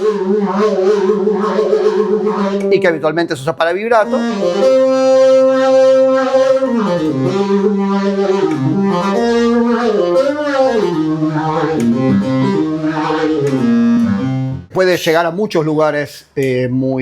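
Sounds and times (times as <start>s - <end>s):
synthesizer slow gliding melody: 0.0s - 2.9s, 4.0s - 14.7s.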